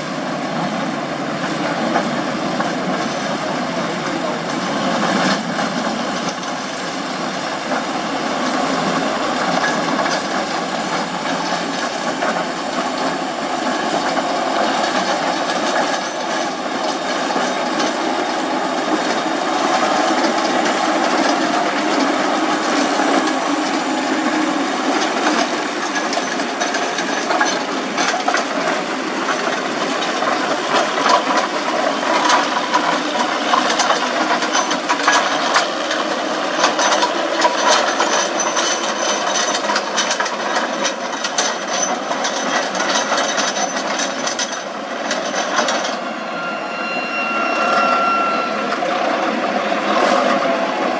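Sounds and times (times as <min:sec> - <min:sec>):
construction machinery running: 0:00.0 - 0:50.9
sharp clatter and knocks: 0:24.9 - 0:46.0.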